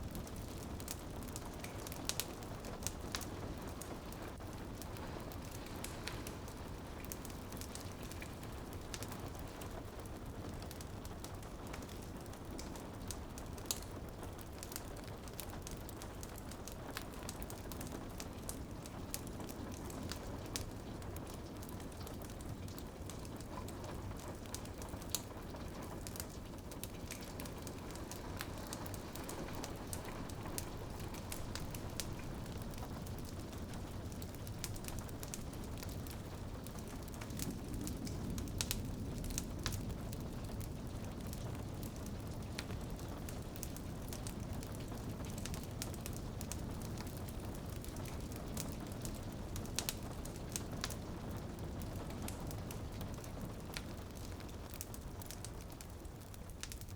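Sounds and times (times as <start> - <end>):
fire crackling and popping: 0.0 - 56.9
rain pattering on window: 0.0 - 56.9.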